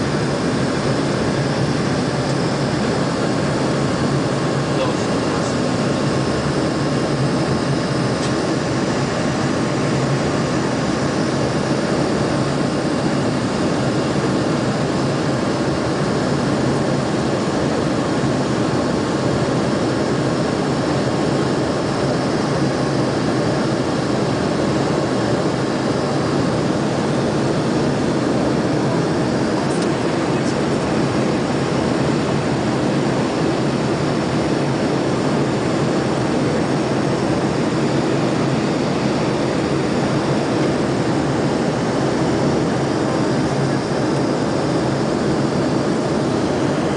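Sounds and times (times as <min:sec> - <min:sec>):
aircraft cabin engine noise: 0:00.0 - 0:46.9.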